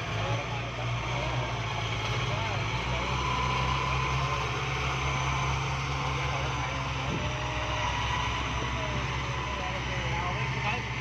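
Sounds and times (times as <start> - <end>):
vehicle engine low drone: 0.0 - 11.0.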